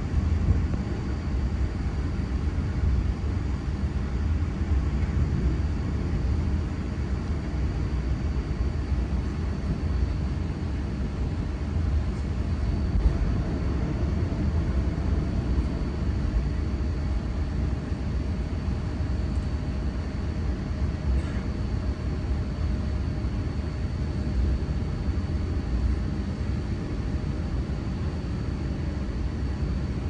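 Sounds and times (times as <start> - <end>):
faint high whine: 0.0 - 30.0
electric train rumbling: 12.9 - 16.8.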